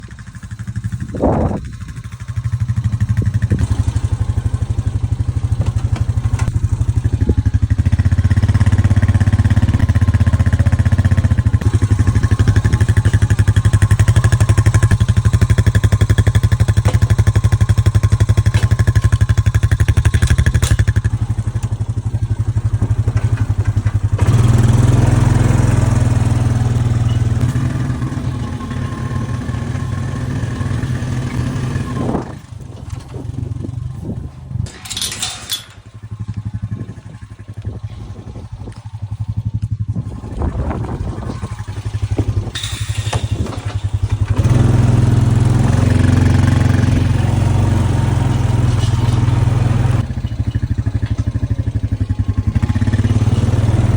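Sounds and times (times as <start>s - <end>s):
vehicle engine under load: 0.0s - 53.9s.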